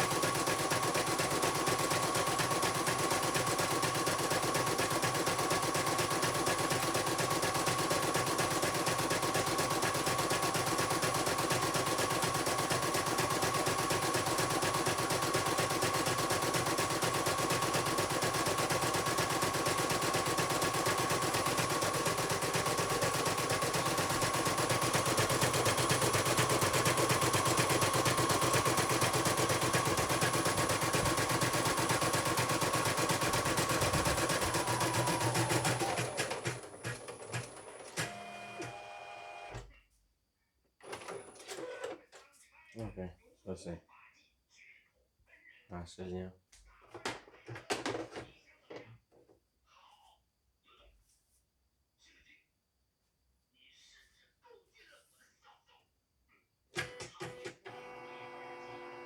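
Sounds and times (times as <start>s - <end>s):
embroidery machine stitching: 0.0s - 39.6s, 40.8s - 41.9s.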